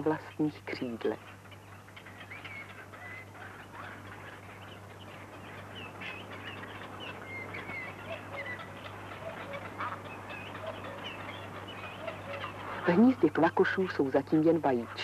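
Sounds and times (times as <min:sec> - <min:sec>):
birds chirping and whistling: 0:01.3 - 0:13.0.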